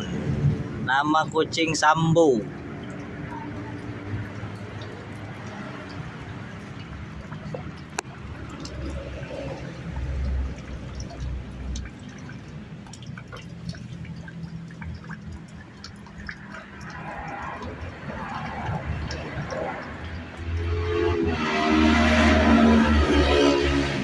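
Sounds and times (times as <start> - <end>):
water dripping from a tap: 0.0 - 24.0.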